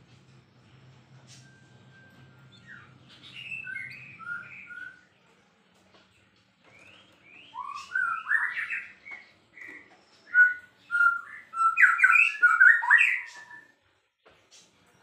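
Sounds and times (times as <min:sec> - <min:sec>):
bird singing whistled phrases: 0:02.5 - 0:05.1, 0:06.8 - 0:13.8.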